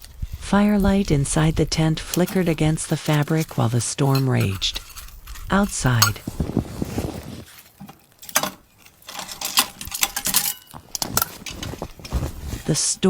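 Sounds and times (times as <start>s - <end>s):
cookware clinking and knocking: 2.2s - 6.4s.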